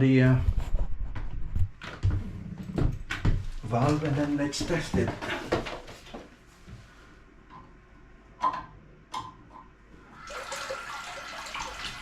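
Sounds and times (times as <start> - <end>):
water running into cistern: 10.0 - 12.0.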